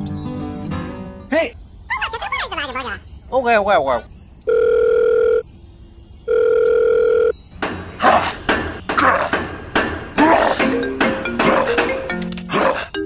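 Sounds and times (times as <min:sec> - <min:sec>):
telephone ringing tone: 0:04.5 - 0:05.4, 0:06.3 - 0:07.4
sharp percussive hits: 0:07.6 - 0:12.5.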